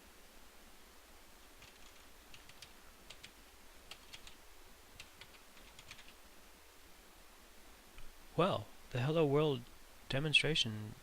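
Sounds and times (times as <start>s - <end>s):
faint typing on keyboard: 1.4s - 6.2s.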